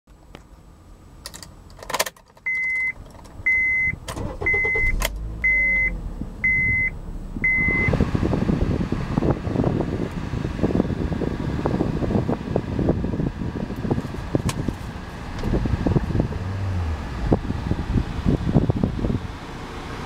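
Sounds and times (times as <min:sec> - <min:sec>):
car engine starting and idling: 0:00.5 - 0:20.0
seat-belt reminder chime: 0:02.5 - 0:07.9
ignition switch clicks: 0:03.5 - 0:05.6
fan blowing: 0:04.2 - 0:20.0.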